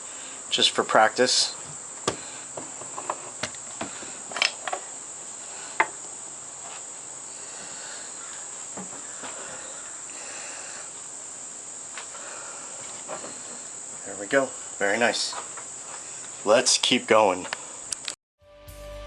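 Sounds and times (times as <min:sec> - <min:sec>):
high-pitched insect chorus: 0:00.0 - 0:18.2.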